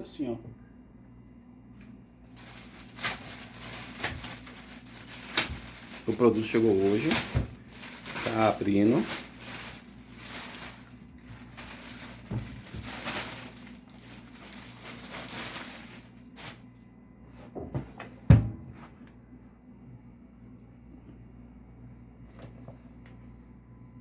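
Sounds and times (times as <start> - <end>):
packaging rustling: 2.3 - 16.7.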